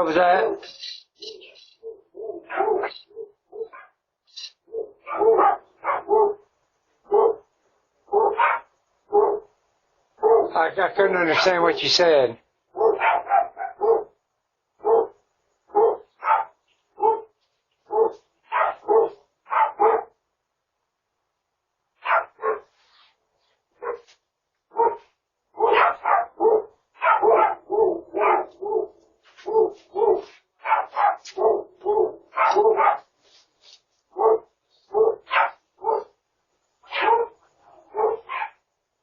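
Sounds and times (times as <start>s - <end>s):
dog barking: 1.8s - 4.0s, 4.6s - 7.5s, 8.1s - 9.5s, 10.2s - 10.6s, 11.3s - 11.6s, 12.7s - 14.2s, 14.8s - 20.2s, 22.0s - 22.7s, 23.8s - 24.1s, 24.7s - 33.1s, 34.1s - 36.2s, 36.8s - 38.6s.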